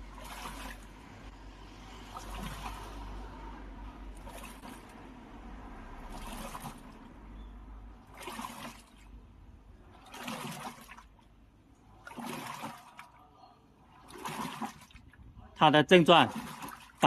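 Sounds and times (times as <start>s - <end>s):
water sloshing in washing machine: 0.0s - 17.0s.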